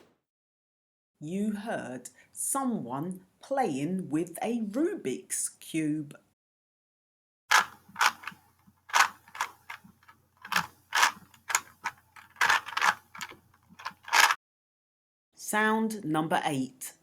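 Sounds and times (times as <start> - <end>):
plastic puzzle cube clacking: 7.5 - 14.4.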